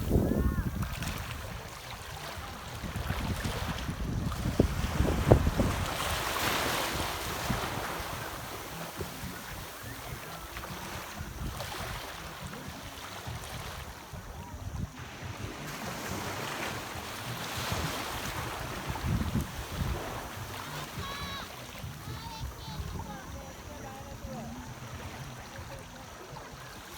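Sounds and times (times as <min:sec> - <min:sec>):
wind gusting on microphone: 0:00.0 - 0:10.4, 0:17.5 - 0:24.6
ocean surf washing on beach: 0:00.0 - 0:26.9.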